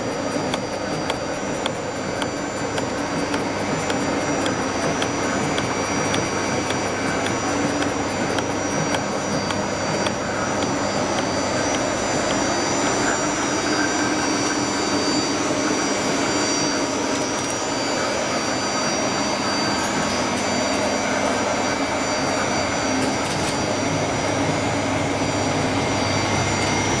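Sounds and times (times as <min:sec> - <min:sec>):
faint regular ticking: 0:00.0 - 0:13.2
machine hum and whir: 0:00.0 - 0:27.0.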